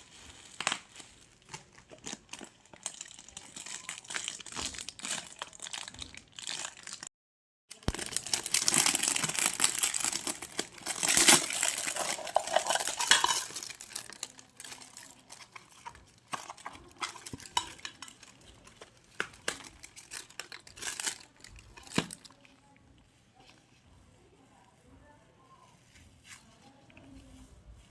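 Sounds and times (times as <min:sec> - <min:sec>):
packaging rustling: 0:00.0 - 0:07.1, 0:07.7 - 0:22.4.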